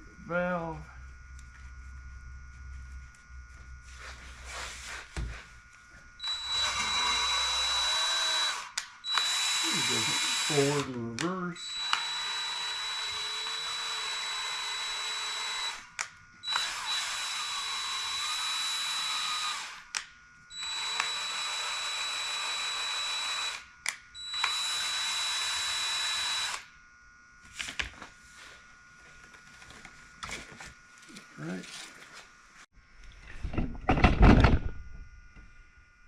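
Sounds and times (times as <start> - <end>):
cordless drill spinning: 5.6 - 11.0, 11.6 - 26.7.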